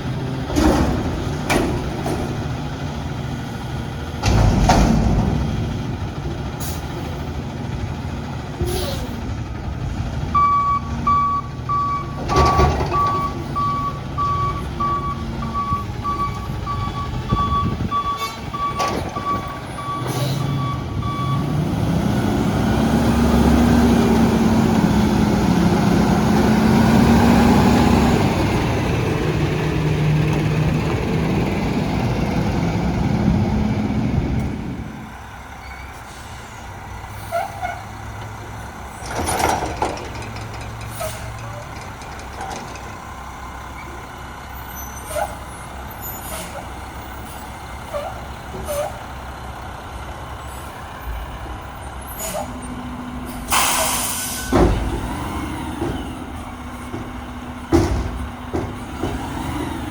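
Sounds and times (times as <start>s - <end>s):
diesel engine revving: 0.0s - 59.9s
reverse alarm beeping: 10.4s - 21.5s.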